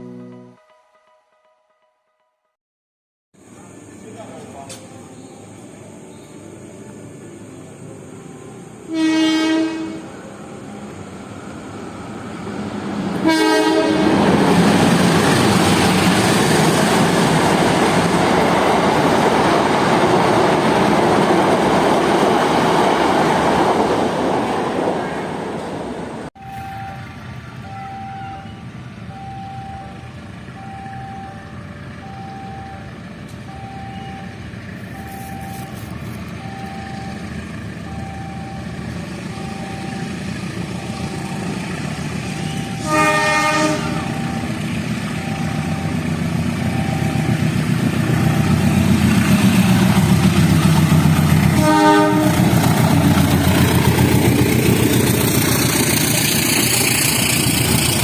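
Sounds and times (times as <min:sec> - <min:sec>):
train engine and wheel rumble: 0:03.4 - 0:58.0
train horn blasts: 0:08.8 - 0:10.3, 0:13.2 - 0:14.3, 0:42.4 - 0:44.6, 0:51.5 - 0:52.7
level crossing bell beeping: 0:44.0 - 0:47.5.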